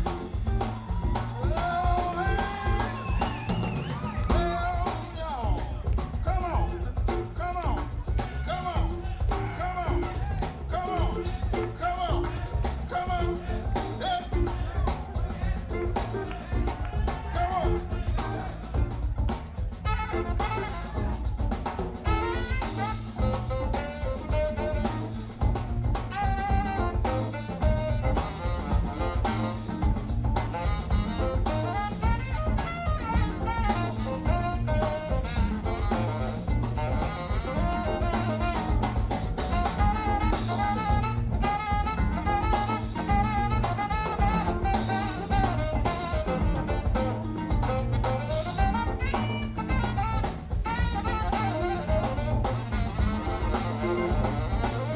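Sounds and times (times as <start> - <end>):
jazz music with drums and saxophone: 0.0 - 54.9.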